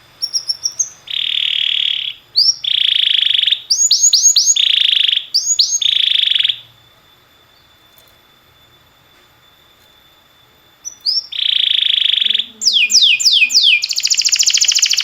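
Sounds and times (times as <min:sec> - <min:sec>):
canary singing trills: 0:00.0 - 0:06.8, 0:09.8 - 0:15.0.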